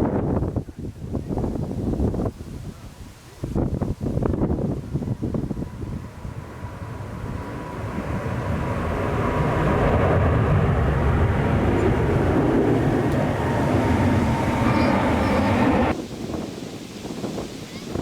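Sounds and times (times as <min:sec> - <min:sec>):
jet engines rushing: 0:04.3 - 0:18.0
thin engine whine: 0:05.3 - 0:16.0.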